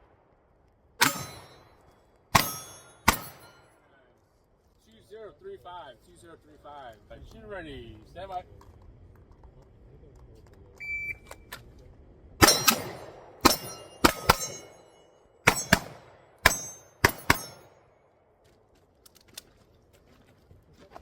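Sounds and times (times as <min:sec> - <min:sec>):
pistol shots: 0:01.0 - 0:03.6, 0:12.4 - 0:17.9
steel targets ringing: 0:01.0 - 0:03.9, 0:12.4 - 0:18.0
shot timer beep: 0:10.8 - 0:11.3.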